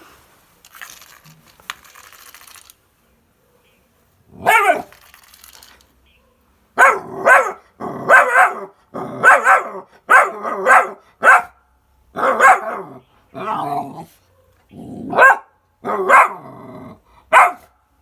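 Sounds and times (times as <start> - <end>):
dog barking: 4.4 - 4.9, 6.2 - 11.6, 12.2 - 16.6, 17.3 - 17.8.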